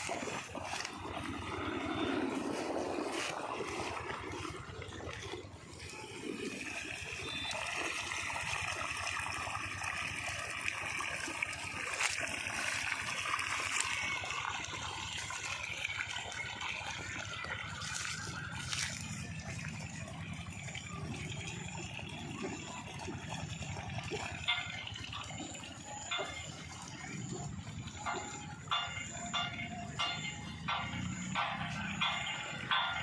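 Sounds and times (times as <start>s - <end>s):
diesel engine running: 0.0s - 7.7s, 27.5s - 33.0s
water gushing from pump outlet: 0.0s - 33.0s.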